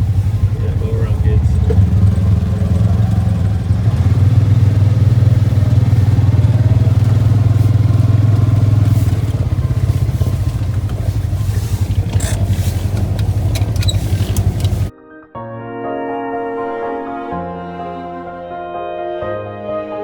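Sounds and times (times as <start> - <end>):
atv engine running: 0.0 - 14.9.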